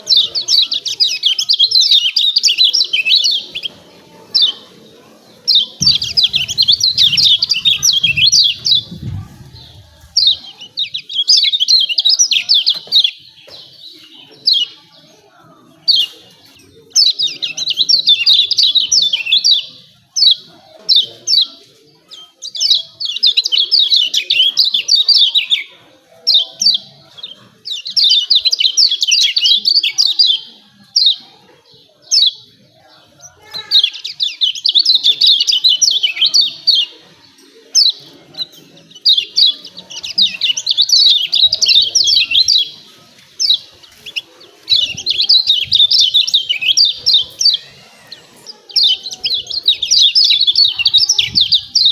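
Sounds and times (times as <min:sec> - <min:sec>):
white-eye bird chattering: 0:05.5 - 0:13.1.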